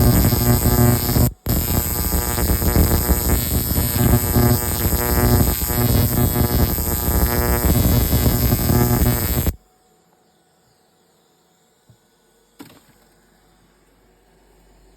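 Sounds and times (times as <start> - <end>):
welder arc buzzing and crackling: 0.0 - 9.6.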